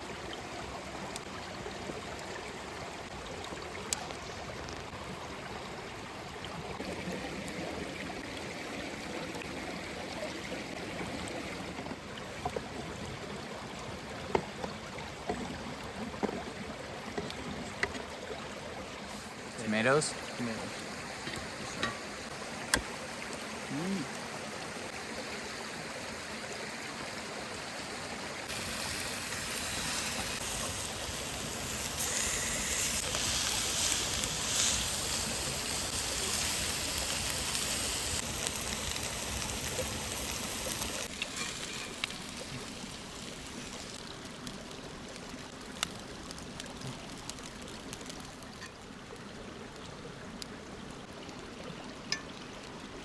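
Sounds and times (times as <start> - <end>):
creek water rushing: 0.0 - 53.0.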